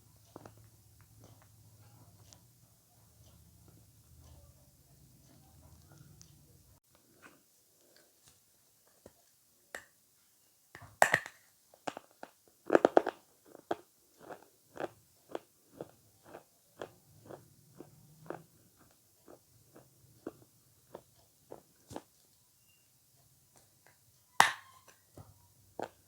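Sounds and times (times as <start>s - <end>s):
chewing: 12.7s - 22.3s.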